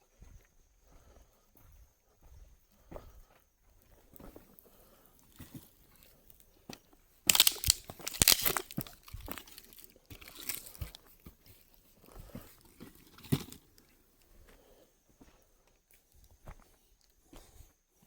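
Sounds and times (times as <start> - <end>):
dry twigs and leaves crunching: 5.4 - 13.8.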